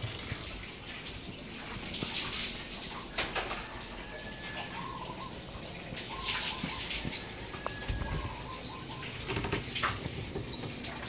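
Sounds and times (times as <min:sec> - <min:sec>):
bird chirps: 0:04.8 - 0:09.4.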